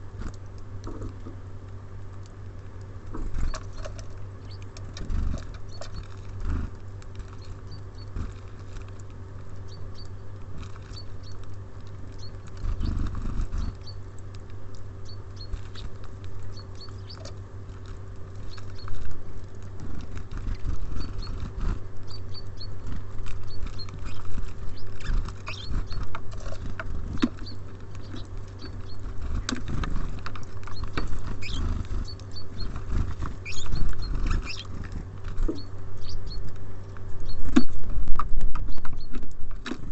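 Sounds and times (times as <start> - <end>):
birds pecking at feeder: 0.0 - 39.9
steady low hum: 0.0 - 39.9
high bird chirps: 12.2 - 14.0, 15.0 - 15.9, 16.5 - 17.4, 22.1 - 26.1, 27.1 - 29.1, 30.7 - 32.8, 33.4 - 34.8, 35.5 - 36.5.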